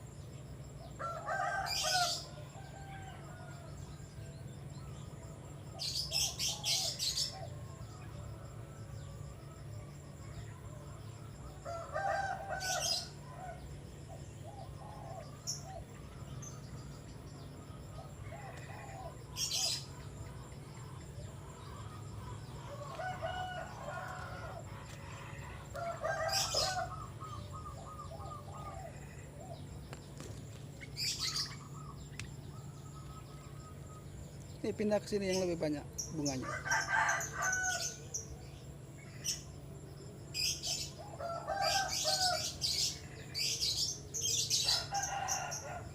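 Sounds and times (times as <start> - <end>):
small bird chirps: 26.2 - 36.4.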